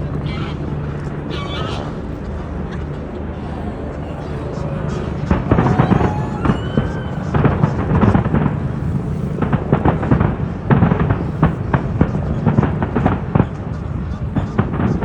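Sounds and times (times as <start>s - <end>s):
fireworks bangs: 5.3s - 15.0s.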